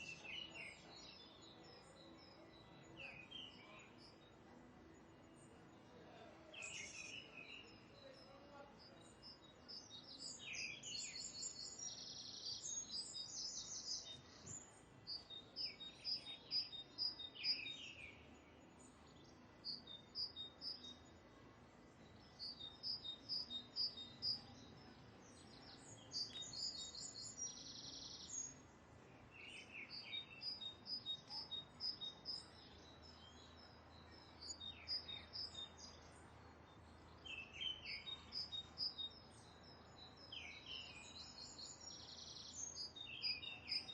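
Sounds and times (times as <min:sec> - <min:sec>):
faint outdoor background noise: 0:00.0 - 0:43.9
birds chirping: 0:22.0 - 0:43.9.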